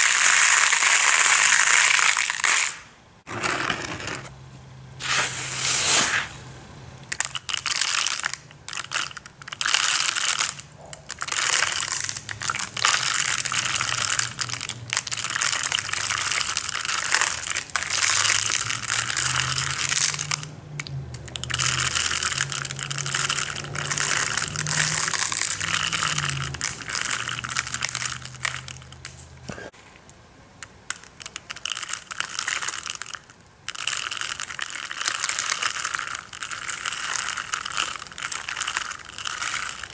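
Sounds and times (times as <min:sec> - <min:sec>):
aquarium gravel crunching: 0:07.2 - 0:30.0, 0:32.0 - 0:39.9.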